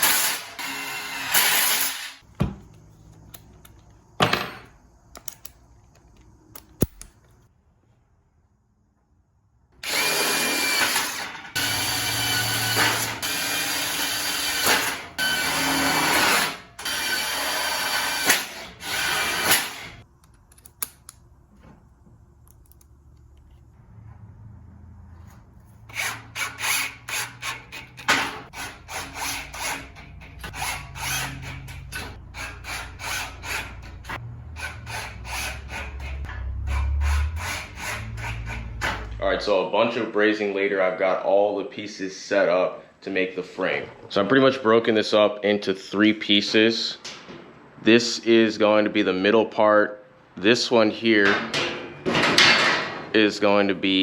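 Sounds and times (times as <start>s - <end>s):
power tool on metal tubing: 0.0s - 2.2s, 9.8s - 20.0s, 25.9s - 39.0s
scraping strokes on metal: 25.7s - 39.2s.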